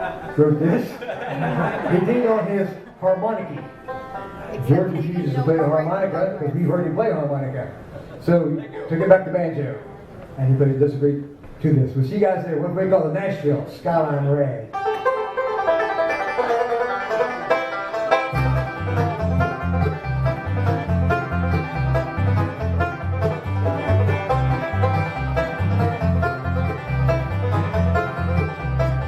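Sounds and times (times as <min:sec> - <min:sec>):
banjo: 0:00.0 - 0:02.2, 0:03.4 - 0:05.8, 0:14.7 - 0:29.0
bluegrass band playing: 0:00.0 - 0:10.6, 0:14.7 - 0:29.0
bass steady beat: 0:18.4 - 0:29.0.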